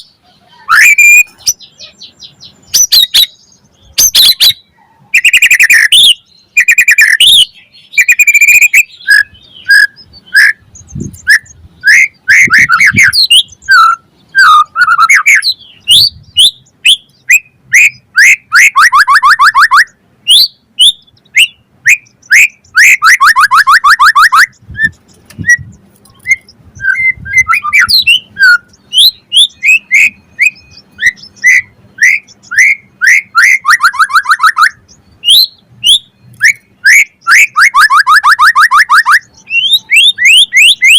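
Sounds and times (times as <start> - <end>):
bird singing whistled phrases: 0.0 - 40.9.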